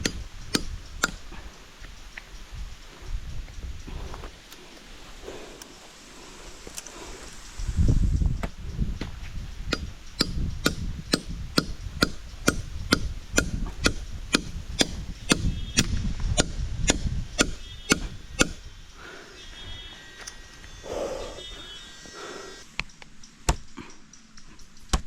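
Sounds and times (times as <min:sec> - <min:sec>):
axe chopping wood: 0:09.7 - 0:18.6.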